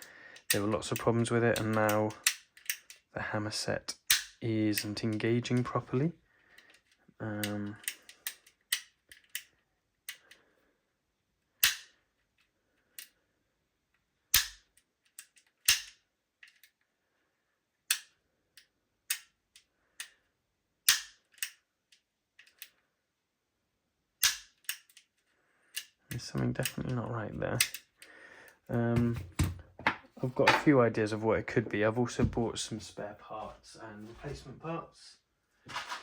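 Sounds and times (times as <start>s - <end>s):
airsoft pistol metallic clicks: 1.6s - 3.0s, 4.1s - 4.4s, 11.6s - 12.0s, 14.3s - 16.8s, 17.9s - 20.2s, 20.8s - 22.7s, 24.2s - 25.1s, 25.7s - 26.0s
pistol slide snaps: 11.6s - 11.9s, 14.4s - 14.6s, 15.2s - 16.0s, 17.9s - 18.1s, 20.9s - 21.6s, 24.2s - 25.0s.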